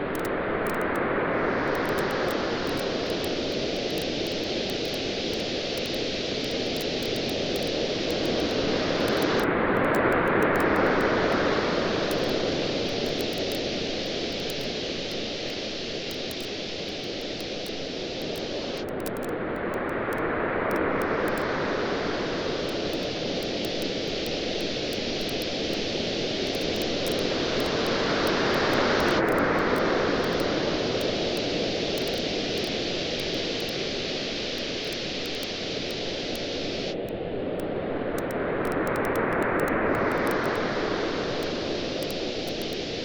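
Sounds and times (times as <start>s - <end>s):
ocean waves on a beach: 0.4s - 18.8s, 19.4s - 43.0s
bonfire crackling: 22.4s - 29.8s.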